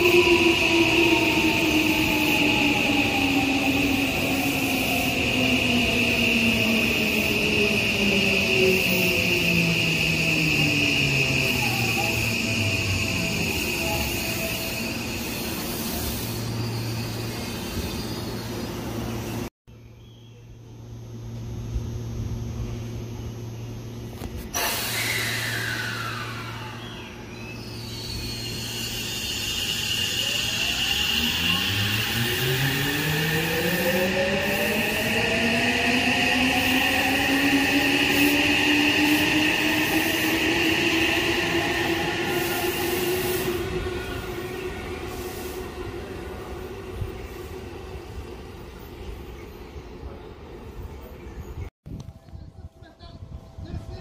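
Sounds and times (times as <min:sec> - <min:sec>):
electric train pulling away: 0:00.0 - 0:19.5, 0:21.2 - 0:51.6
sudden hiss: 0:24.4 - 0:26.8.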